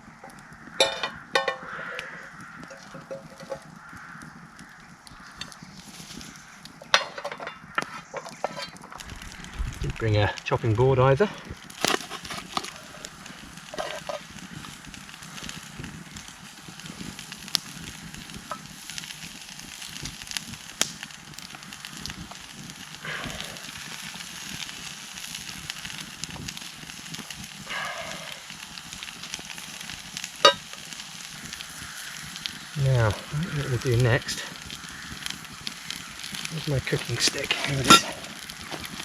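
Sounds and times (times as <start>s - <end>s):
campfire crackling and hissing: 0.0s - 39.0s
small pops: 20.8s - 21.1s.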